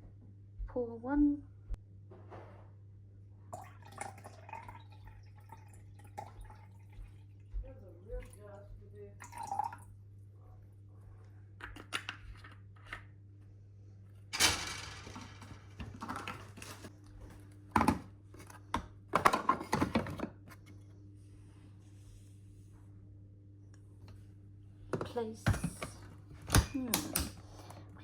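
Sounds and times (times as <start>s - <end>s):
coffee machine parts clattering: 14.4s - 16.9s.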